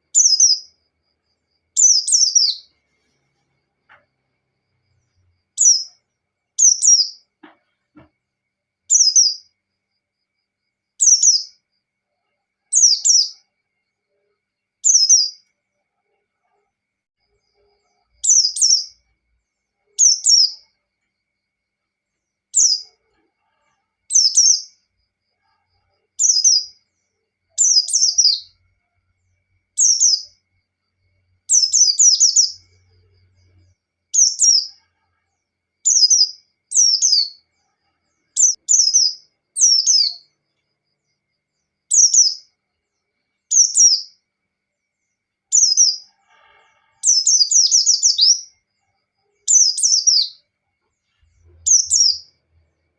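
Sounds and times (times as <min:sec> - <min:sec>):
bird singing chirped phrases: 0:38.4 - 0:40.3, 0:51.5 - 0:52.3.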